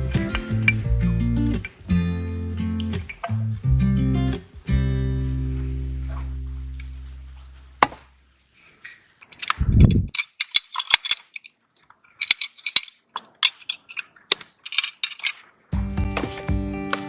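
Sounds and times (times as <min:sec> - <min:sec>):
chorus of insects: 0:00.0 - 0:17.0
clicks and knocks from gear: 0:09.2 - 0:11.5, 0:12.2 - 0:15.5.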